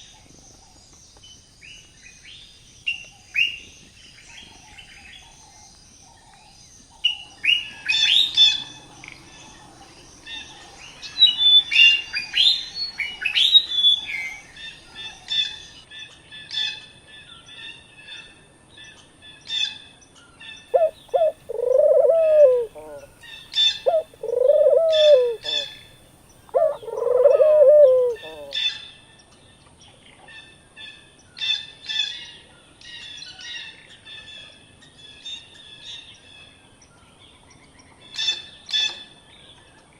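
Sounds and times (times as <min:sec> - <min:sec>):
songbirds chirping: 0:00.0 - 0:39.9
lower rising and falling bird call: 0:20.8 - 0:25.8, 0:26.5 - 0:28.6.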